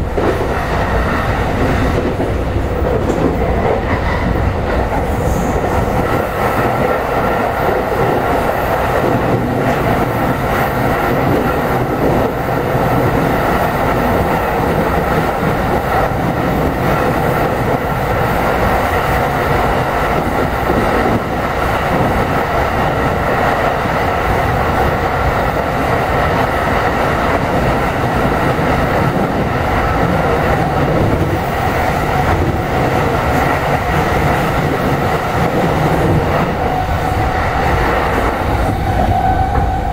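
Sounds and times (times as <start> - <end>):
train wheels rumbling on rail: 0.0 - 39.9
faint clickety-clack: 1.9 - 5.8.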